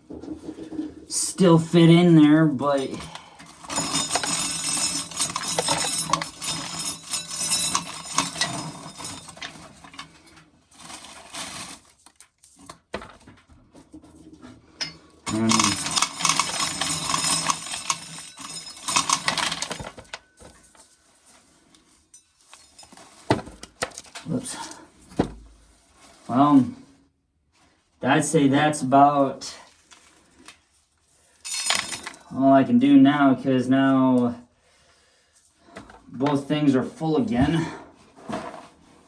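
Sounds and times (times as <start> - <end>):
dry corn kernels rattling: 2.7 - 9.9, 15.3 - 20.8.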